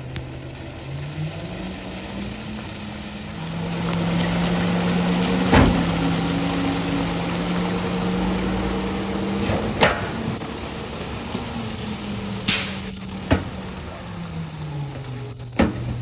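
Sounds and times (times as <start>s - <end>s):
hydraulic packer humming: 3.3s - 16.0s.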